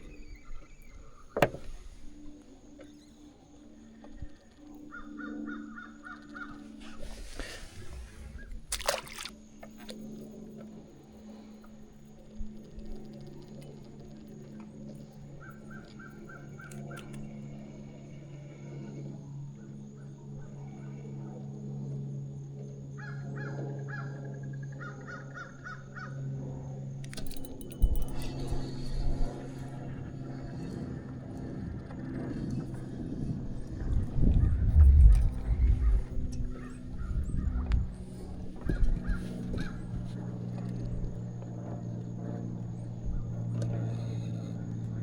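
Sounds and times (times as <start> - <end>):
steady low hum: 0.0 - 45.0
bird calling: 4.8 - 8.6, 33.8 - 40.0.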